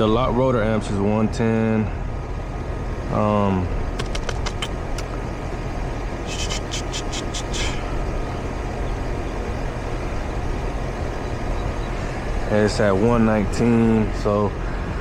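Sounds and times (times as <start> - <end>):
air conditioner unit running: 0.0 - 15.0
small clicks: 4.0 - 5.1.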